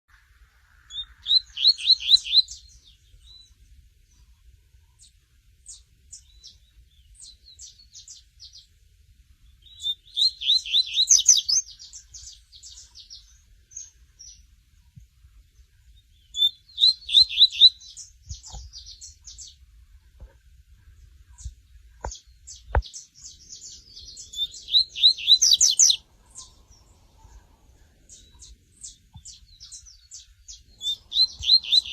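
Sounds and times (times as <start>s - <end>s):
bird singing loud phrases: 0.8s - 4.3s, 5.0s - 8.8s, 9.4s - 19.6s, 20.9s - 31.9s
soft high chirps: 9.6s - 14.0s, 15.9s - 19.6s, 21.2s - 31.9s.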